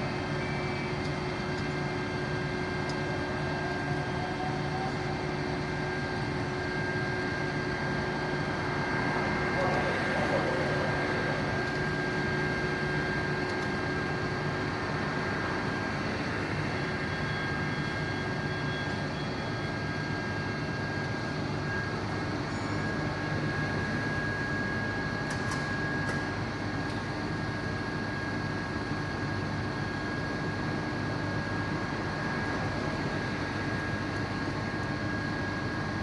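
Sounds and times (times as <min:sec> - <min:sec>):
high whine: 0:00.0 - 0:26.4.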